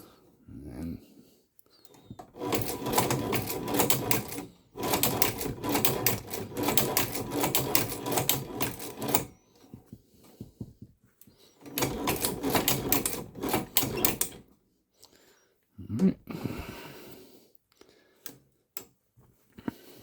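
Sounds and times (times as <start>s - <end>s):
sewing machine clattering: 1.9s - 9.8s, 11.6s - 14.5s.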